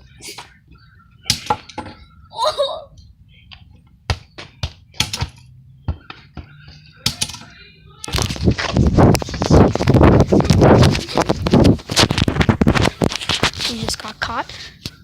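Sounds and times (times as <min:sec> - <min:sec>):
loud crackling and rustling: 0:08.0 - 0:14.6.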